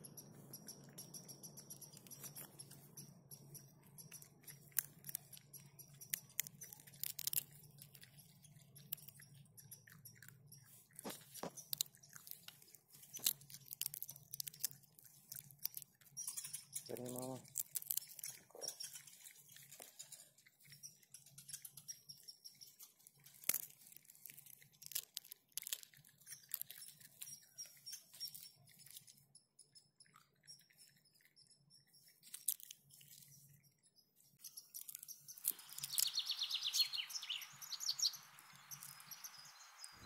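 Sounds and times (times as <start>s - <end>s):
bird trill: 0.0s - 12.2s, 16.2s - 17.4s, 32.9s - 40.0s
birds chirping: 0.0s - 13.2s, 16.1s - 22.8s, 32.8s - 40.0s
raccoon cracking peanut shells: 0.6s - 29.3s, 32.1s - 33.3s, 34.4s - 39.2s.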